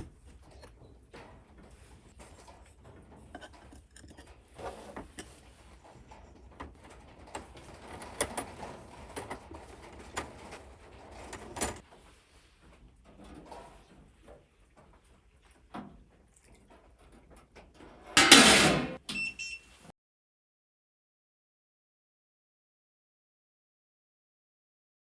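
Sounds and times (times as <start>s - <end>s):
metal parts and tools clicking: 2.6s - 5.5s.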